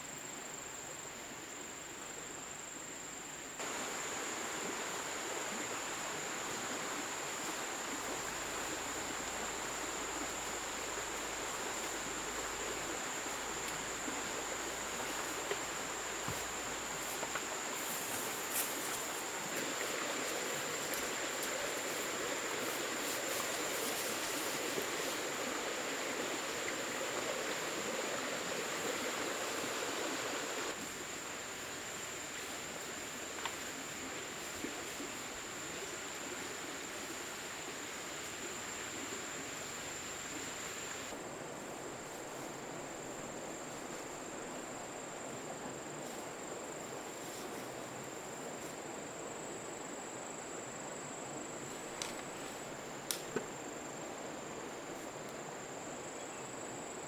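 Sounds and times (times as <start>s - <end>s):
running water: 3.6s - 30.8s.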